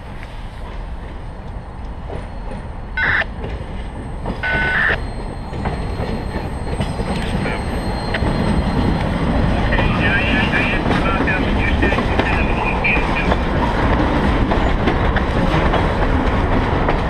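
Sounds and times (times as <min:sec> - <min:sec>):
freight train rumbling: 0:00.0 - 0:17.0
high-pitched train horn blasts: 0:04.4 - 0:05.0.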